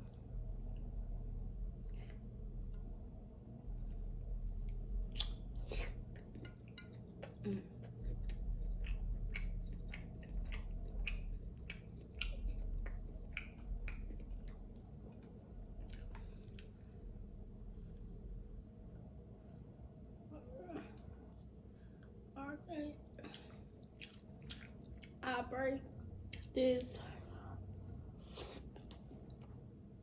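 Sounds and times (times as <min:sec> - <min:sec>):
faint low hum: 0:00.0 - 0:30.0
chewing: 0:05.1 - 0:17.0, 0:23.2 - 0:25.2.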